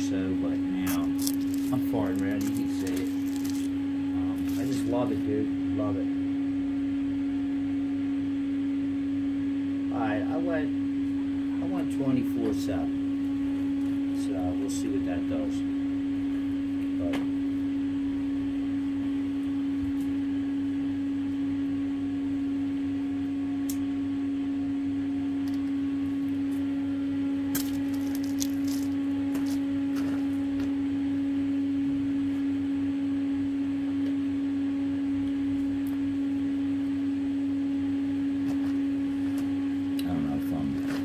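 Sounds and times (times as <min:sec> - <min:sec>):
welder hum: 0:00.0 - 0:41.0
arc welding hiss: 0:00.9 - 0:03.7.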